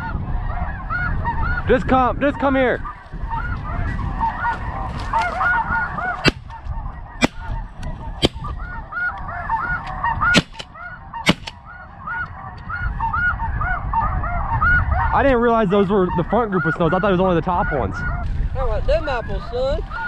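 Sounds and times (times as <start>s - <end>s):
snow geese honking: 0.0s - 15.1s, 15.7s - 18.2s, 19.0s - 20.0s
wind rumbling on microphone: 0.0s - 20.0s
shotgun shots: 7.2s - 7.5s, 8.2s - 8.5s, 10.4s - 10.7s, 11.3s - 11.6s.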